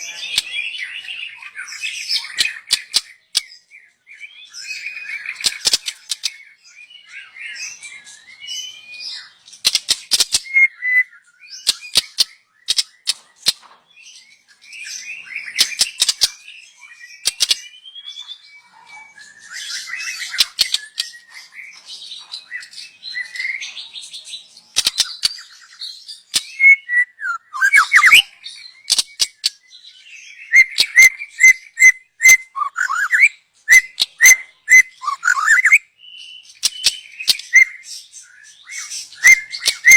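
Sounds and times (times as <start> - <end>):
sharp bird clicks: 2.2 - 3.6, 5.3 - 6.4, 9.6 - 10.6, 11.6 - 13.7, 15.5 - 16.4, 17.2 - 17.7, 20.4 - 21.2, 24.7 - 25.7, 26.3 - 28.2, 28.8 - 29.6, 36.5 - 38.0, 39.1 - 39.9
bird singing whistled phrases: 10.3 - 12.7, 25.0 - 39.9.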